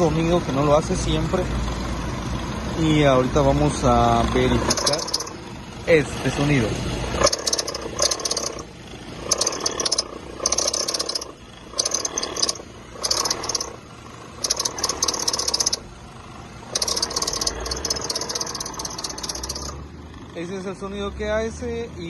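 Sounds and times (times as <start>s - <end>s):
car engine idling: 0.0s - 21.9s
rattling grinding pulley bearing: 3.7s - 20.8s.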